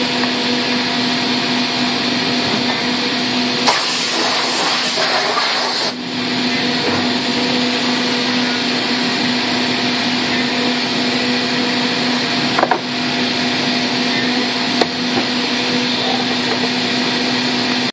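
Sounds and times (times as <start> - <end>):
machine hum: 0.0 - 17.9
loud even hiss: 3.6 - 6.0.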